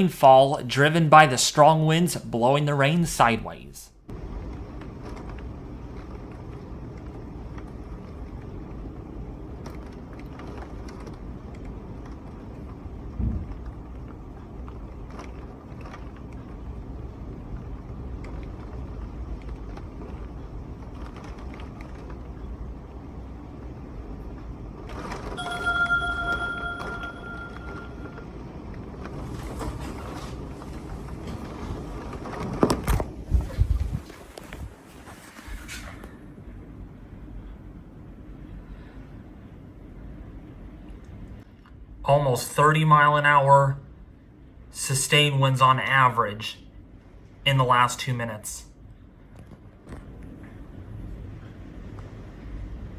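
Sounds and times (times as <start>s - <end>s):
strong wind: 33.2s - 34.7s.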